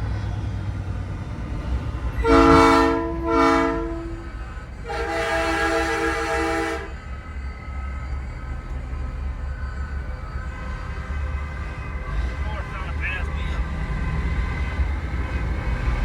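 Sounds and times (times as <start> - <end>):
truck engine rumble: 0.0 - 16.0
multi-tone train horn blasts: 2.1 - 7.1.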